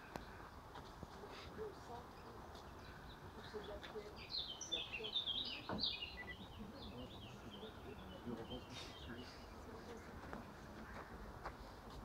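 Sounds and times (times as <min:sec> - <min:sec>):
songbird singing: 0:00.0 - 0:12.0
bird chirps: 0:02.1 - 0:09.6.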